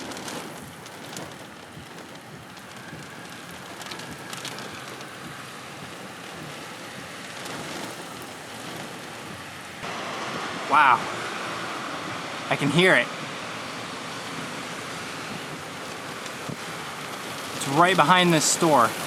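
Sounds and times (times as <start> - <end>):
rain and wind hiss: 0.0 - 19.0
raindrops tapping: 0.0 - 19.0.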